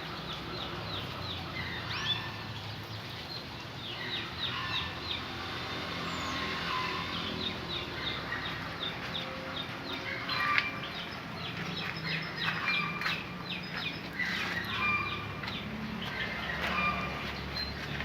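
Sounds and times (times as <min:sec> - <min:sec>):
canary chirping: 0:06.2 - 0:17.8.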